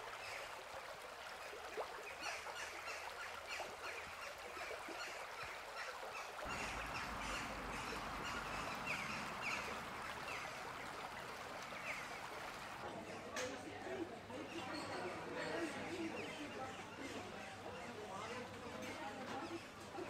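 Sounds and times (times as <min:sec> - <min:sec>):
birds calling: 0:01.6 - 0:12.8.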